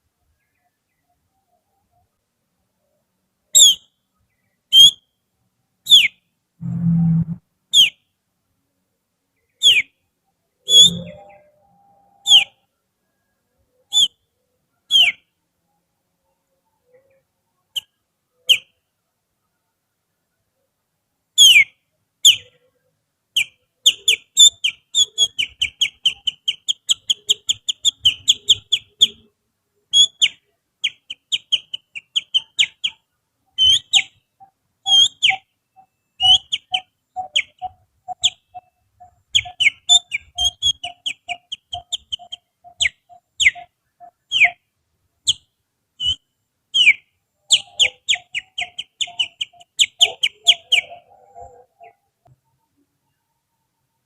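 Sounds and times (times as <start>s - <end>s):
soft low pulsing note: 6.6s - 7.4s
finger whistling bird song: 10.7s - 11.5s, 13.9s - 14.2s, 33.6s - 34.1s, 36.2s - 38.4s, 46.0s - 46.2s.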